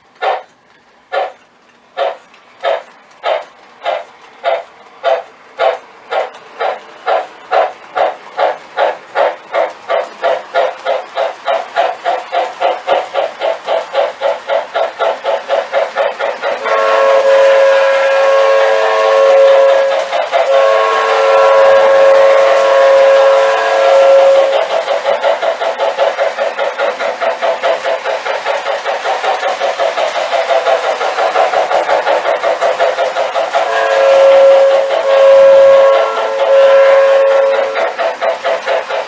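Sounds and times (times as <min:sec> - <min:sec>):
model locomotive steam chuffing: 0:00.0 - 0:39.0
multi-note steam whistle: 0:15.3 - 0:28.0, 0:30.5 - 0:39.0.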